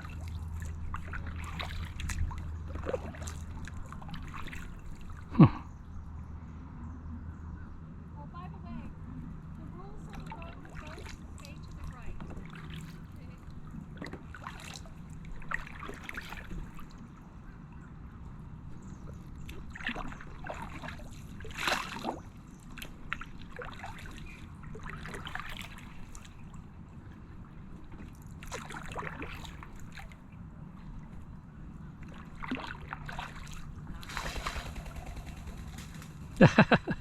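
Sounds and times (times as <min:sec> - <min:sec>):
paddle splashing in water: 0:00.0 - 0:05.5, 0:09.6 - 0:17.6, 0:18.5 - 0:36.4
low rumble: 0:29.6 - 0:37.0.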